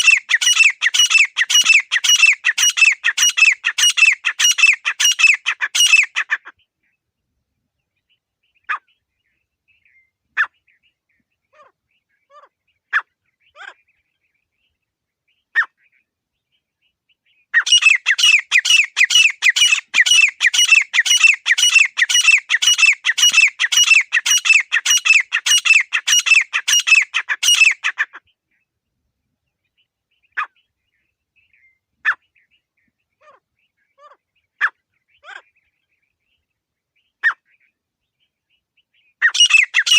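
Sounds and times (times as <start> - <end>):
francolin calling: 0.0 - 6.4, 17.6 - 28.1, 39.2 - 39.9.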